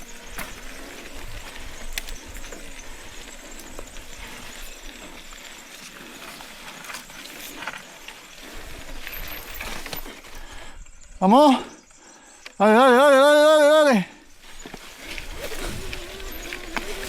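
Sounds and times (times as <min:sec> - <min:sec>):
bike clicks and knocks: 0:00.0 - 0:10.4.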